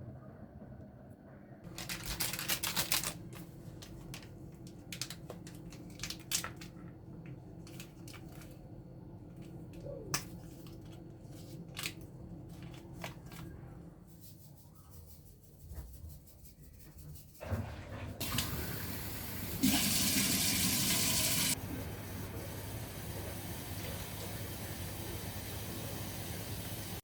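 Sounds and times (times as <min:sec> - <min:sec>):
objects being handled: 0:01.7 - 0:08.6, 0:09.2 - 0:16.1.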